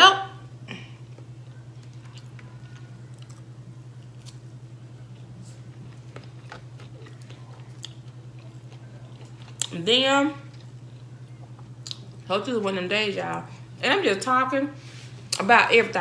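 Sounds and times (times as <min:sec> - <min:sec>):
chewing chicken: 0:01.0 - 0:12.2.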